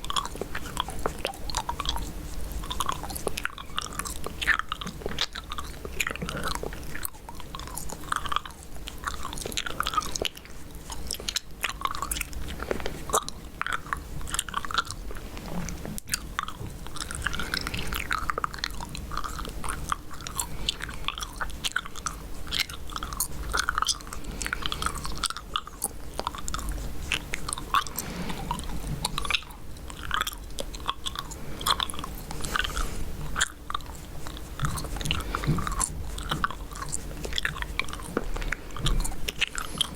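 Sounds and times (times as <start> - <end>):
gum chewing with wet smacks: 0.0 - 39.9.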